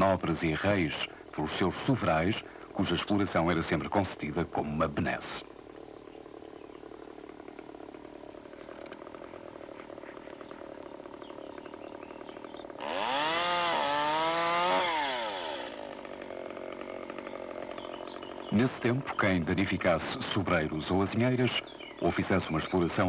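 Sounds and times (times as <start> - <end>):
chainsaw engine revving: 6.3 - 23.0.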